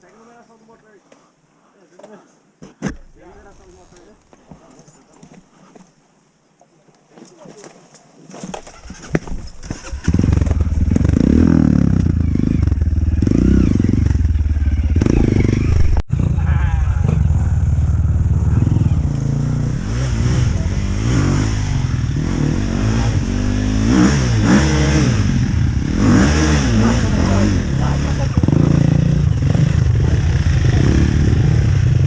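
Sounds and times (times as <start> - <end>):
dirt bike engine revving: 9.6 - 32.0.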